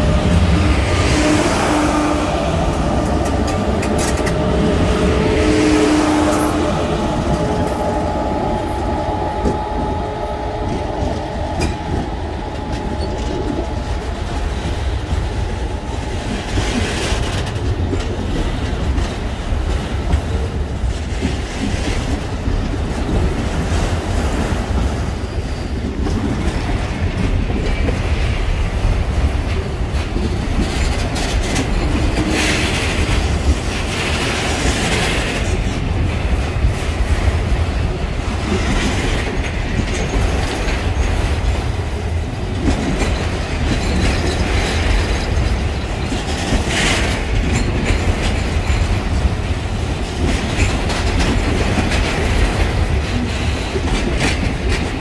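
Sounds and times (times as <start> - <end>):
high-pitched wheel noise: 0.0 - 17.4
electric locomotive hum: 0.0 - 55.0
freight train wheels rumbling: 0.0 - 55.0.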